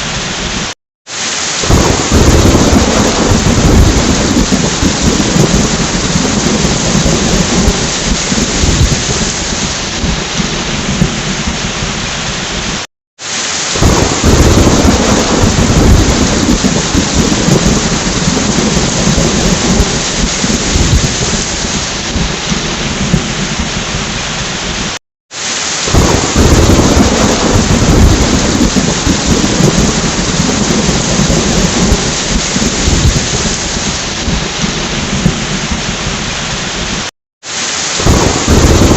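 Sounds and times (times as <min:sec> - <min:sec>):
heavy rain: 0:00.0 - 0:38.9
rolling thunder: 0:01.6 - 0:12.8, 0:13.8 - 0:25.0, 0:25.9 - 0:37.1, 0:38.0 - 0:38.9.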